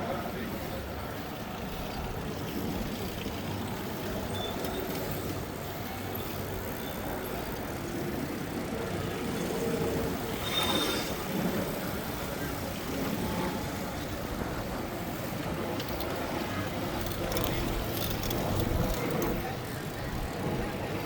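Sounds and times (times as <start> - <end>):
city traffic rumble: 0.0 - 21.0
high squeak: 10.4 - 11.2.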